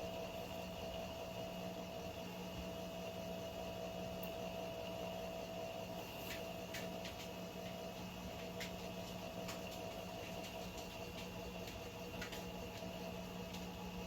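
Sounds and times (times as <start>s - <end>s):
faint clicks and ticks: 6.2s - 13.8s.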